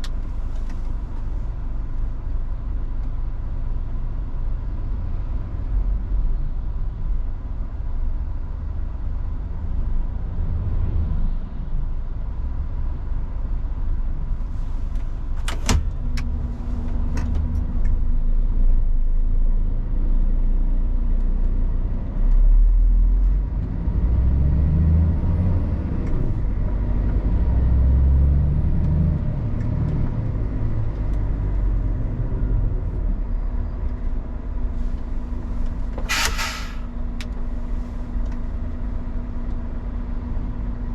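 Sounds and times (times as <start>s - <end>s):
truck diesel engine driving: 23.6s - 40.9s.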